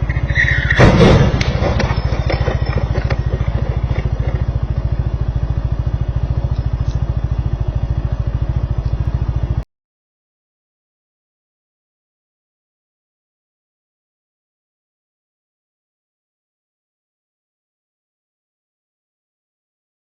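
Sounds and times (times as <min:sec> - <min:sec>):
debris clattering: 0:00.0 - 0:04.6
vehicle crash impact: 0:00.0 - 0:04.6
low pulsing thrum: 0:00.8 - 0:09.6.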